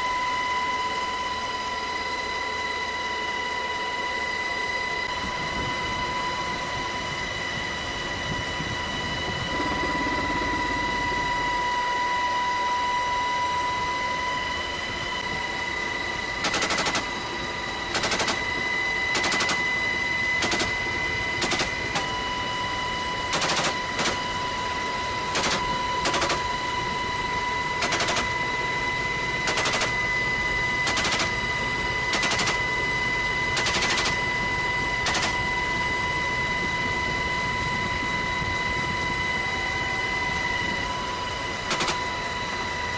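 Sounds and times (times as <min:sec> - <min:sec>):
helicopter whine: 0:00.0 - 0:42.9
machine gun firing bursts: 0:16.4 - 0:17.1, 0:17.9 - 0:18.5, 0:19.1 - 0:19.6, 0:20.4 - 0:20.7, 0:21.4 - 0:22.0, 0:23.3 - 0:24.2, 0:25.4 - 0:26.4, 0:27.8 - 0:28.3, 0:29.5 - 0:30.0, 0:30.8 - 0:31.4, 0:32.1 - 0:32.7, 0:33.6 - 0:34.2, 0:35.0 - 0:35.4, 0:41.7 - 0:42.0.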